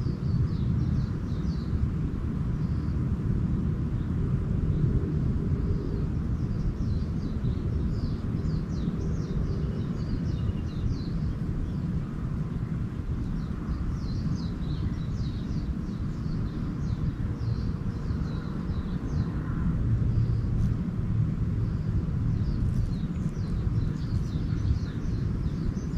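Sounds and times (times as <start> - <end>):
small birds twittering: 0.0 - 3.0, 3.8 - 25.9
steady low rumble: 0.0 - 25.9.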